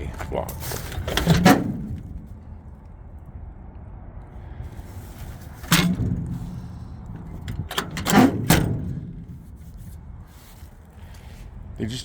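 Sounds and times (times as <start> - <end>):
car door shutting: 0.9 - 2.3, 5.6 - 9.4
door latch and handle clicks: 7.4 - 9.0.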